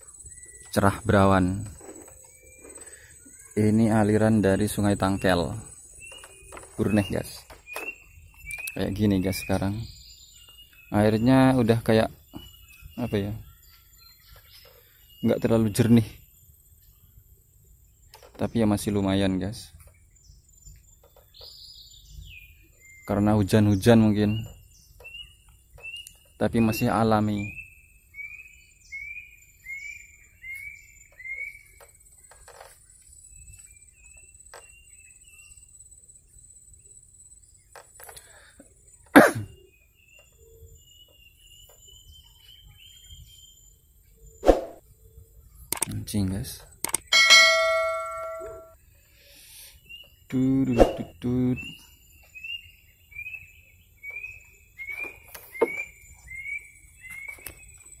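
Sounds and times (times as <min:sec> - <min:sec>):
sharp knocks: 0:46.9 - 0:48.7
bird high single-note call: 0:47.0 - 0:48.8
thin steady high tone: 0:47.1 - 0:48.8
bird whistled call: 0:50.6 - 0:57.6.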